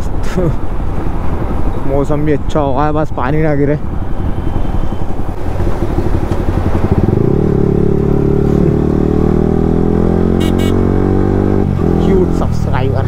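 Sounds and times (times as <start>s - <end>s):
motorcycle engine revving: 5.4s - 12.6s
short high-pitched beep: 10.4s - 10.8s.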